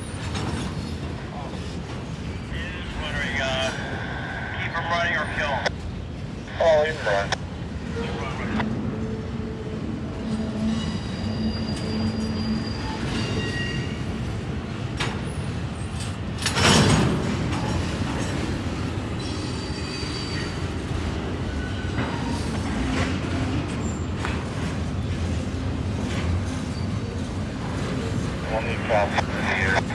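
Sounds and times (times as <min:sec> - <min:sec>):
train cars rumbling: 0:00.0 - 0:29.9
high-pitched wheel squeal: 0:10.4 - 0:14.1, 0:19.2 - 0:20.6.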